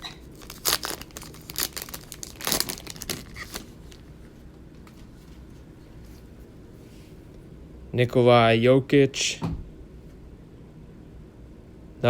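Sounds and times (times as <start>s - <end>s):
wrapper tearing and crinkling: 0.3s - 4.1s.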